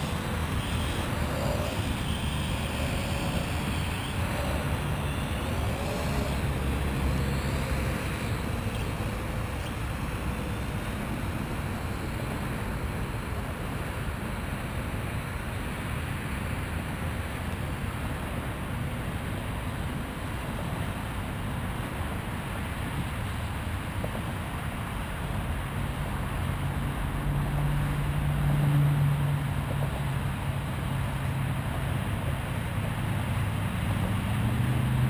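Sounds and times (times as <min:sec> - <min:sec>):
faint wavering hum: 0:00.0 - 0:17.4
low rumbling outdoor noise: 0:00.0 - 0:35.0.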